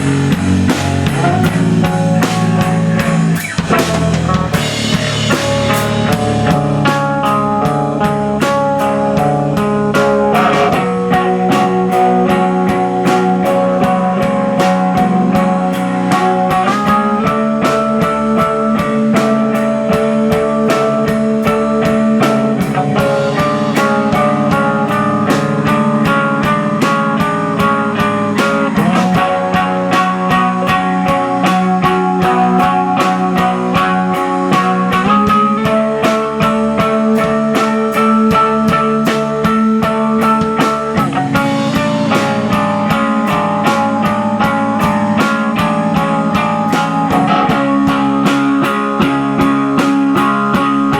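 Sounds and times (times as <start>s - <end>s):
drum beat: 0.0s - 50.9s
electric guitar chords: 0.0s - 50.9s.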